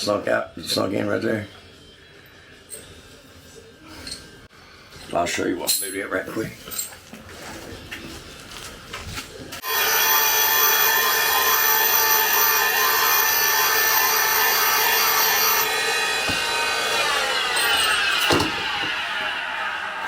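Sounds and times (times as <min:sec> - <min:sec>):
valve grinder whining and grinding: 0:09.6 - 0:19.8.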